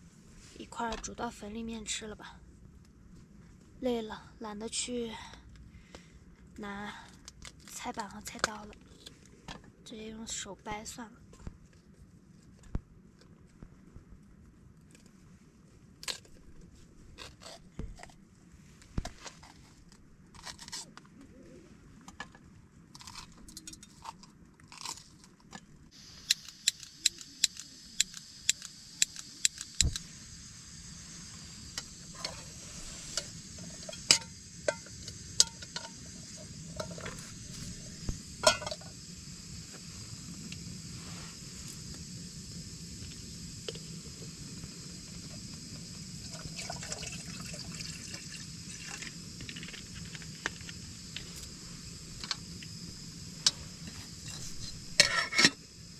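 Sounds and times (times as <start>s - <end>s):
steady hiss: 25.9s - 55.9s
sharp clicks: 26.2s - 30.0s
pots and utensils clinking: 32.2s - 37.3s, 38.4s - 38.9s, 54.2s - 55.6s.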